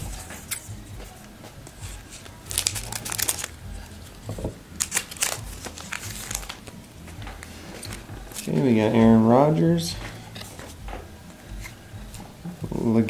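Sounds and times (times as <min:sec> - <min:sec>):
plastic wrapper crinkling: 0:02.2 - 0:03.6, 0:04.8 - 0:06.8.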